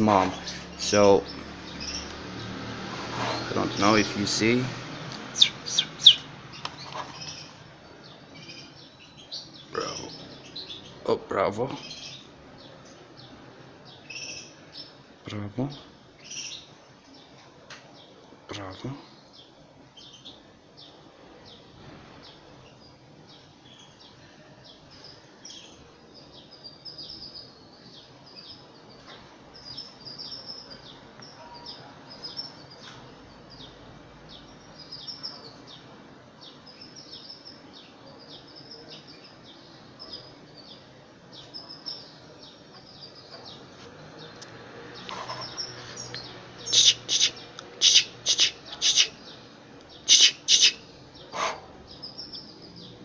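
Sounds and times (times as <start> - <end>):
bird chick begging chirps: 5.0 - 7.6, 45.1 - 52.5.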